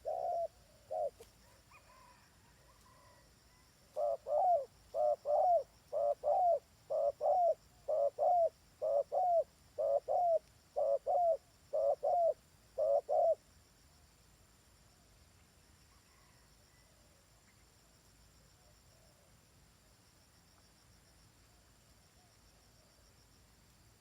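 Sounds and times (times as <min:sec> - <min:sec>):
dove cooing: 0:00.0 - 0:13.4.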